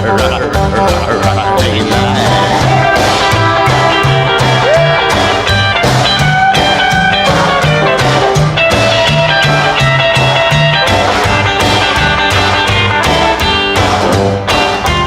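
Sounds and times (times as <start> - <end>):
bass line: 0.0 - 15.0
lead guitar notes: 0.0 - 15.0
steady drum beat: 0.0 - 15.0.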